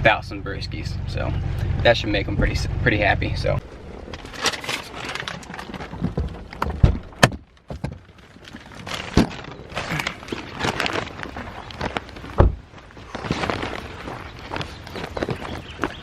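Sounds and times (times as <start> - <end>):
footsteps: 7.7 - 16.0
car door thudding shut: 12.4 - 12.6.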